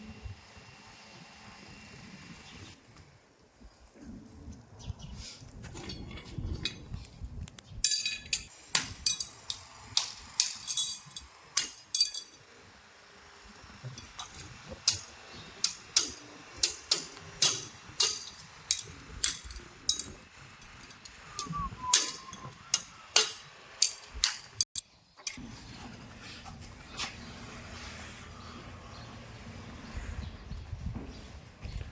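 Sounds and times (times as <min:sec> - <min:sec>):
metal tools tapping on hoof: 0:07.8 - 0:12.4.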